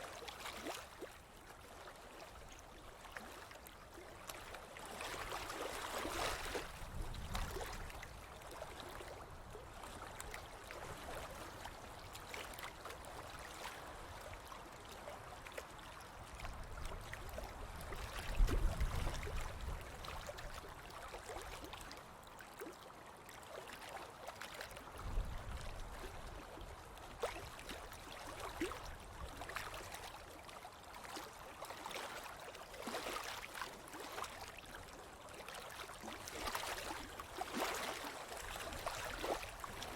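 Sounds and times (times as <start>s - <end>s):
ocean waves on a beach: 0.0s - 39.9s.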